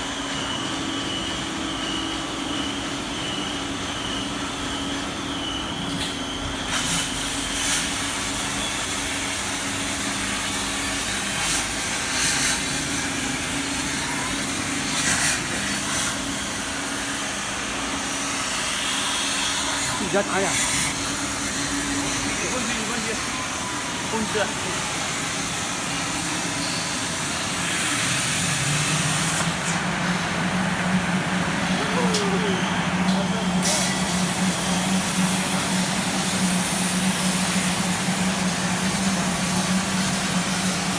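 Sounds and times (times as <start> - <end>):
plasma cutter hiss: 6.6 - 29.8, 31.8 - 40.9
machine hum: 16.0 - 40.9.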